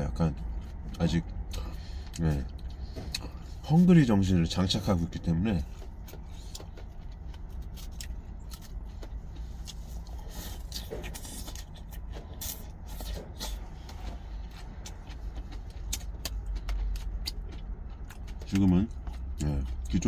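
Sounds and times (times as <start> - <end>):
steady low rumble: 0.0 - 20.0
chewing crisp salad: 4.8 - 20.0.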